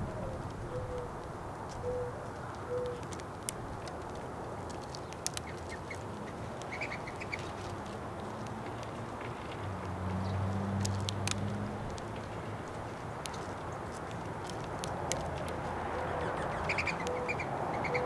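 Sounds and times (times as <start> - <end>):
soft low bird calls: 0.0 - 3.2, 15.8 - 18.0
sharp clicks: 2.8 - 7.5.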